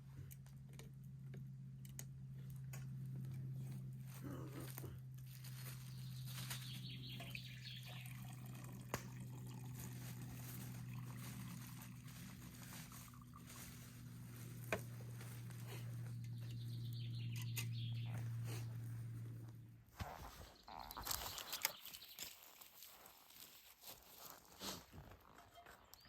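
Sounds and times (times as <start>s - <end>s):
steady low hum: 0.0s - 20.6s
water trickling and dripping: 7.2s - 13.9s.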